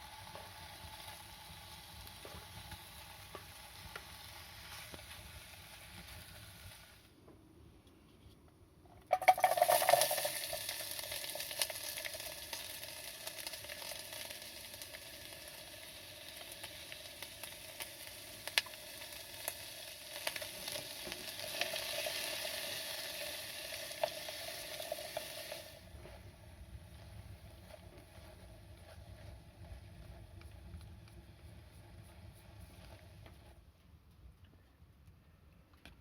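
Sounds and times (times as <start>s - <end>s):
food sizzling in a hot pan: 0.0s - 7.1s, 9.1s - 33.5s.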